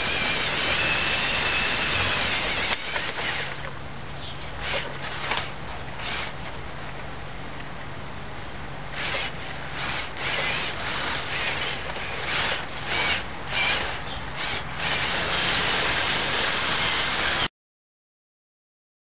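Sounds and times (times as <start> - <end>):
toy truck motors whirring and grinding: 0.0 - 3.7, 4.5 - 6.5, 9.0 - 17.5.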